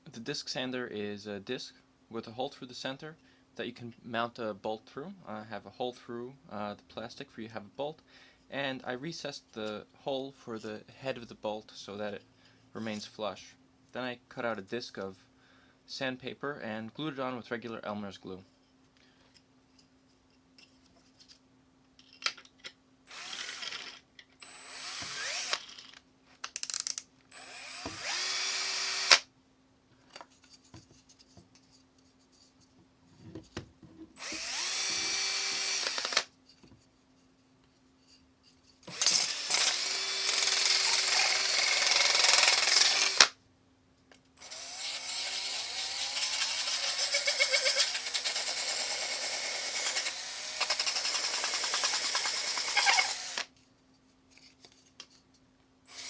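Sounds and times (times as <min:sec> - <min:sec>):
power drill whining: 0:23.1 - 0:26.0, 0:27.3 - 0:29.2, 0:34.2 - 0:36.3, 0:38.9 - 0:43.3, 0:44.4 - 0:53.5.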